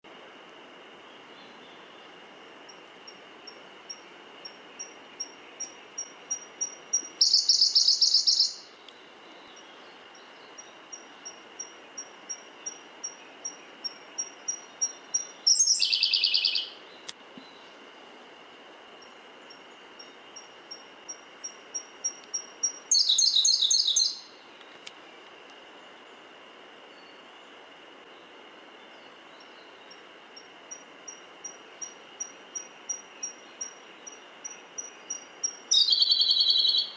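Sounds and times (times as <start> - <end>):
bird singing high notes and trill: 4.8 - 8.8, 21.4 - 24.3, 31.5 - 36.9.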